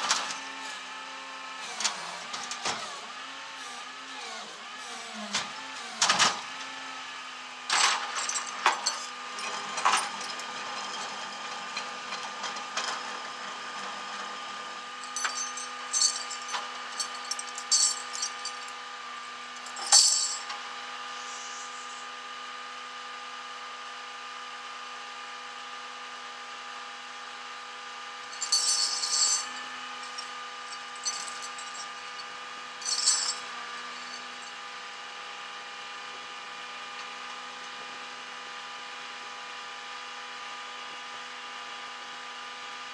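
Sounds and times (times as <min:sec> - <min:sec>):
metallic clinks and rattles: 0:07.7 - 0:10.4, 0:15.0 - 0:18.8, 0:19.5 - 0:20.6, 0:28.2 - 0:34.6
steady machine hum: 0:14.9 - 0:22.2, 0:28.2 - 0:34.8.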